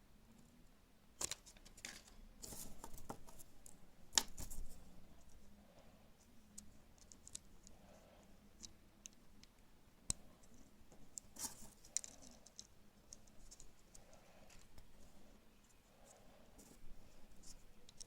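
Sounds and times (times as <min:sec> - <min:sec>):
plastic toy egg clicks and crinkles: 0:11.1 - 0:13.8.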